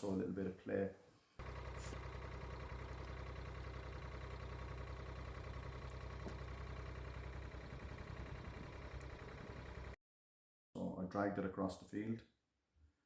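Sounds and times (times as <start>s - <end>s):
front loader engine humming: 1.4s - 10.0s.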